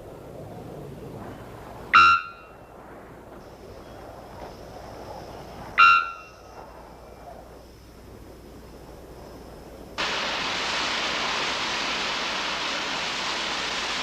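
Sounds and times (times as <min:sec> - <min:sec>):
forest background hiss: 0:00.0 - 0:14.0
bird calling ringing note: 0:02.0 - 0:02.6, 0:05.8 - 0:06.5.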